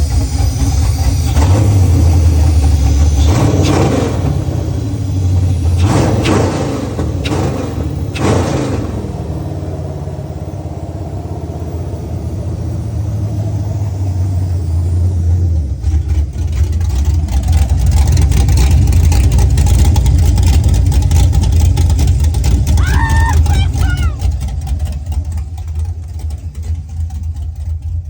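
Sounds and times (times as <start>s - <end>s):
engine throttle blip: 0.0s - 15.0s
car engine idling: 0.0s - 28.0s.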